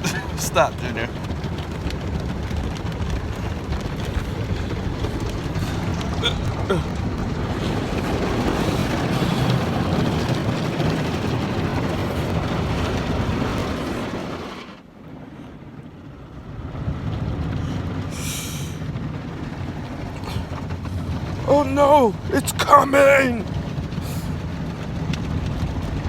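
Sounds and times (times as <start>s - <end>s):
car wash water spray: 7.0s - 14.8s.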